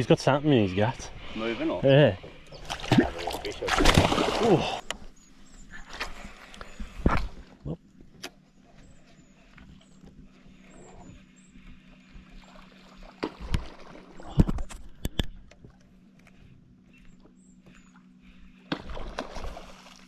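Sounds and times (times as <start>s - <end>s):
steady low hum: 0.0s - 20.0s
sharp knocks and clicks in boat: 11.1s - 19.3s.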